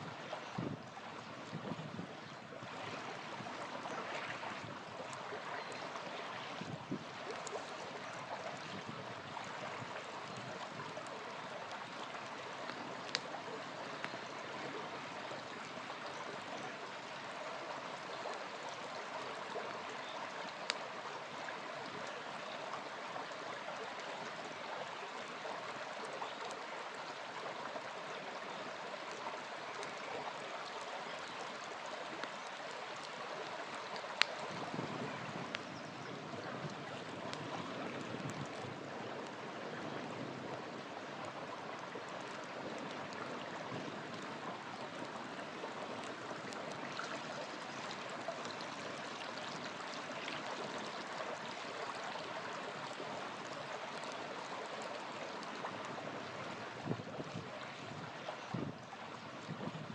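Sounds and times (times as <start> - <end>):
small river flowing: 0.0 - 59.9
campfire popping: 6.6 - 14.5, 32.2 - 35.8.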